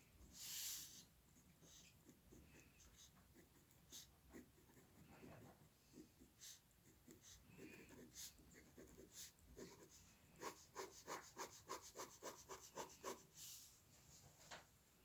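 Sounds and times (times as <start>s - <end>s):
drawing tool scratching on paper: 1.6s - 13.4s.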